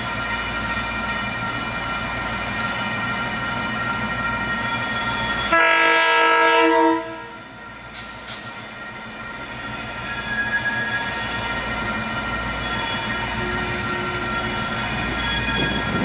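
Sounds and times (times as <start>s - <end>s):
train wheels squealing: 0.0s - 1.8s, 3.4s - 5.5s, 7.8s - 16.0s
locomotive horn blast: 5.5s - 7.4s.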